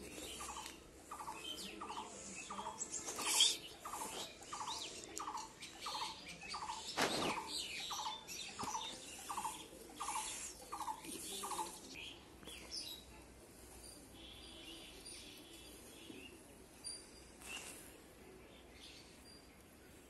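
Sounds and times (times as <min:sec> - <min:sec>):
other birds chirping: 0:00.0 - 0:13.1.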